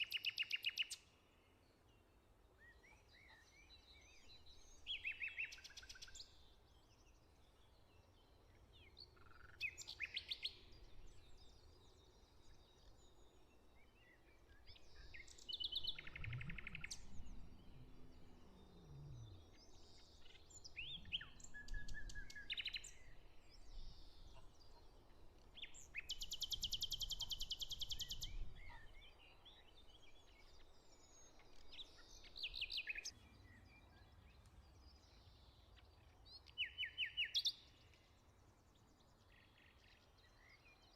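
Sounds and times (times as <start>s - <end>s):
songbirds singing: 0.0s - 40.9s
faint low rumble: 15.7s - 22.0s.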